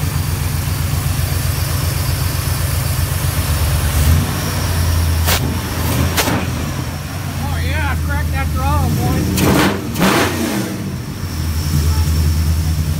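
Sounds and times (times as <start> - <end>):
car engine idling: 0.0 - 12.9.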